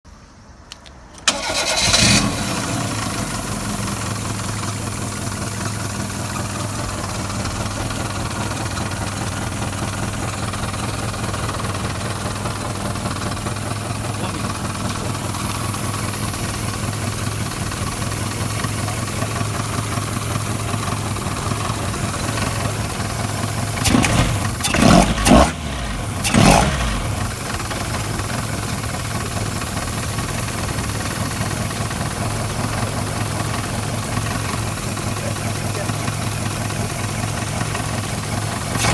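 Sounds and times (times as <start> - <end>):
car engine starting and idling: 0.1 - 38.9
engine revving: 1.3 - 5.3, 21.3 - 28.3, 38.6 - 38.9.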